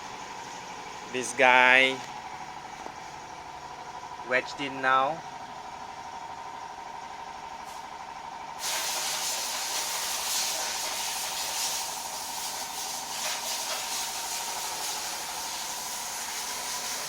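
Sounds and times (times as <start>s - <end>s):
loud continuous hiss: 8.6s - 17.0s.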